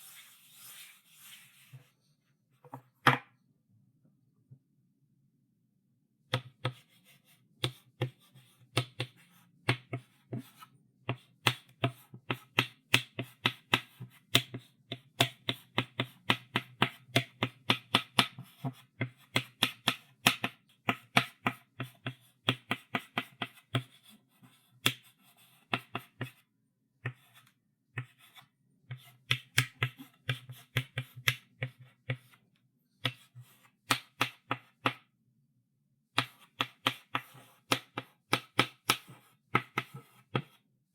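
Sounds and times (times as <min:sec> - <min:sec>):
chalk writing on a chalkboard: 0:00.0 - 0:01.8, 0:06.4 - 0:26.4, 0:27.0 - 0:32.4, 0:36.2 - 0:40.6.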